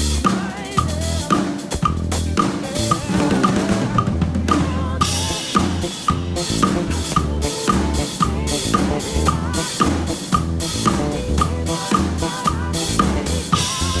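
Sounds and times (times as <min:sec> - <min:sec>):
bass guitar notes: 0:00.0 - 0:14.0
drum kit backbeat: 0:00.0 - 0:14.0
wavering melody line: 0:05.0 - 0:14.0.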